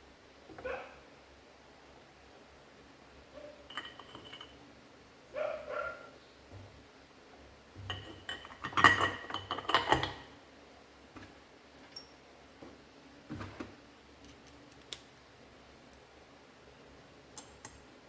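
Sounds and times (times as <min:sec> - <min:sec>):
metal tools clinking: 0:03.7 - 0:04.6.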